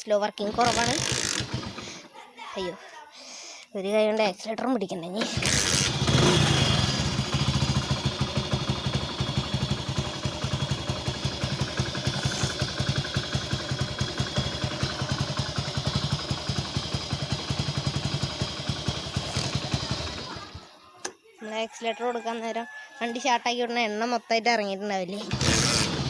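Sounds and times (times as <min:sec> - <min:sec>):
motorcycle engine idling: 0:00.5 - 0:02.0, 0:05.2 - 0:20.9, 0:25.2 - 0:26.0.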